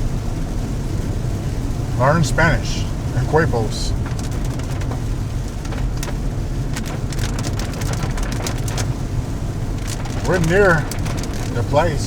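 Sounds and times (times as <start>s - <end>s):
car engine and tyres rumble: 0.0s - 12.0s
rain hitting car roof: 0.0s - 12.0s.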